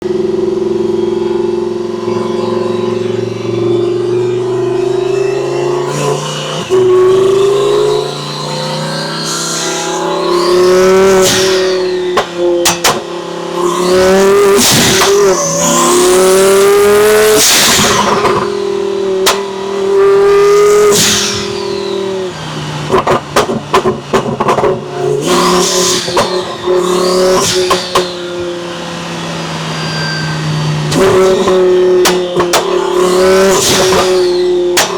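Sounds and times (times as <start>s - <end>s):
sports car accelerating hard: 0.0s - 34.9s
turbo whistle: 0.4s - 12.9s, 24.9s - 34.9s
exhaust pops and crackles: 11.1s - 13.1s, 17.4s - 19.6s, 22.7s - 26.8s, 30.9s - 34.9s.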